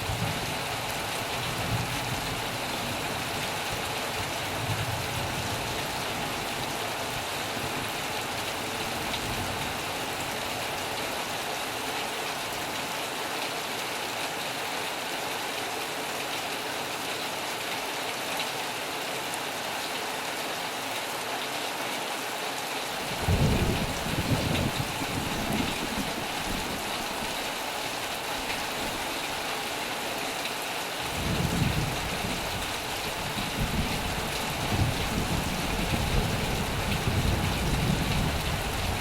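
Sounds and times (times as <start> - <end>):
heavy rain on a metal roof: 0.0 - 39.0
thunder rumble: 23.2 - 27.4.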